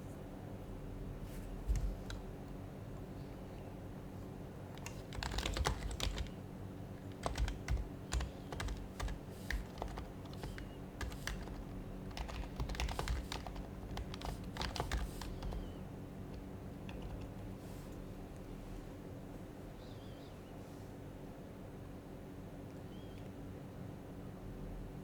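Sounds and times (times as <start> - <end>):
low steady hum: 0.0 - 25.0
soft keyboard keystrokes: 1.6 - 2.6, 4.7 - 6.4, 7.0 - 18.5.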